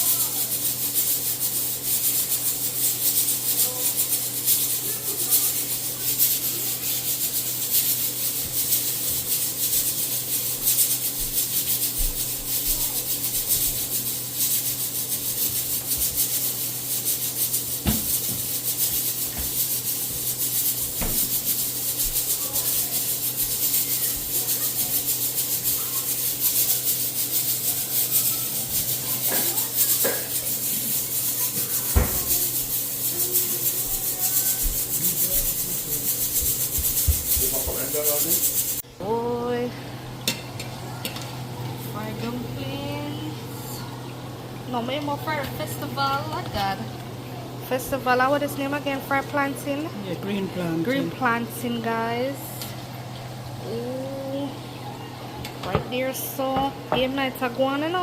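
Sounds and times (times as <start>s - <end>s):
dumplings sizzling in hot oil: 0.0s - 38.8s.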